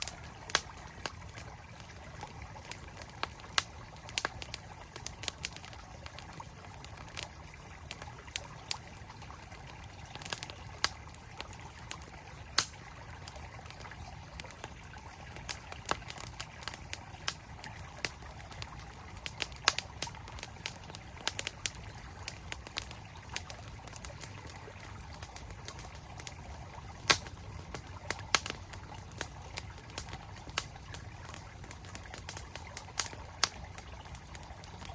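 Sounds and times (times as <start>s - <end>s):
campfire crackling and popping: 0.0s - 34.9s
flowing mountain stream: 0.0s - 34.9s.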